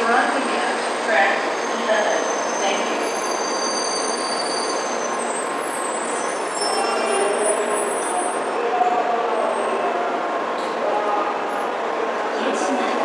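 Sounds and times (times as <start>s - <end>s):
high-pitched brake squeals: 1.4s - 8.6s.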